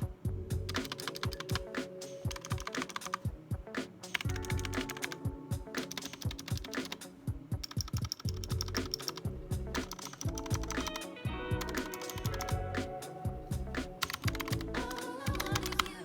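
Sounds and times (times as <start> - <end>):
keyboard keystroke clicks: 0.7 - 3.2, 4.1 - 5.2, 5.8 - 7.0, 7.6 - 12.6, 13.9 - 16.0.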